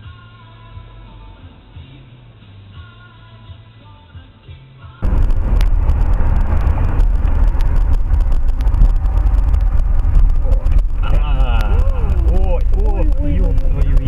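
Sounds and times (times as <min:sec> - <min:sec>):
car engine and road noise: 0:00.4 - 0:03.3, 0:05.0 - 0:14.0.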